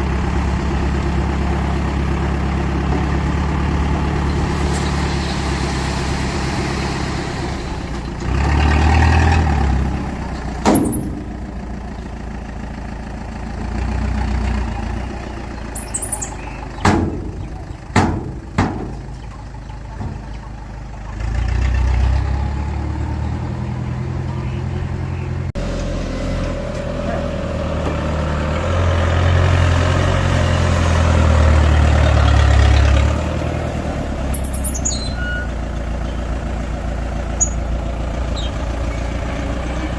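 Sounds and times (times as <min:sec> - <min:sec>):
bulldozer diesel engine running: 0:00.0 - 0:39.9
sharp metallic clanks: 0:10.4 - 0:11.6, 0:37.4 - 0:37.6.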